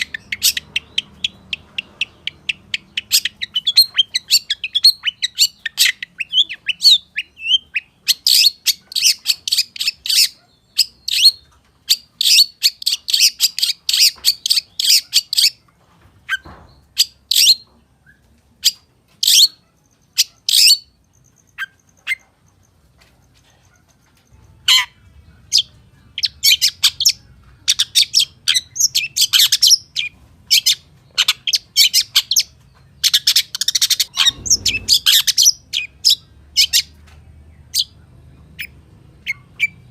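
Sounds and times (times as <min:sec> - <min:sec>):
bird singing sharp quick chirps: 0:33.1 - 0:36.9.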